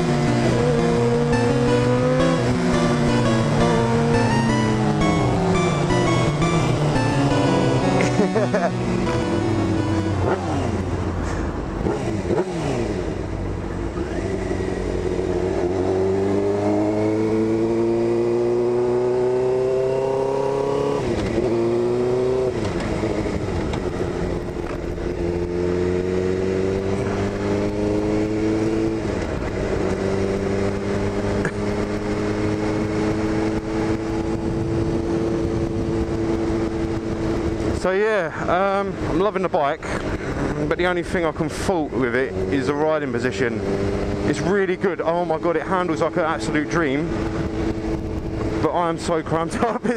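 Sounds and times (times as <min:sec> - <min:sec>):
motorcycle engine accelerating: 0:00.0 - 0:37.8, 0:40.0 - 0:48.7
wind noise: 0:31.2 - 0:37.8.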